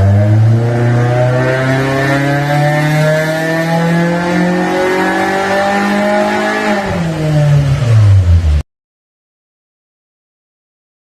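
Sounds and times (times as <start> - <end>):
car engine revving under load: 0.0 - 8.6.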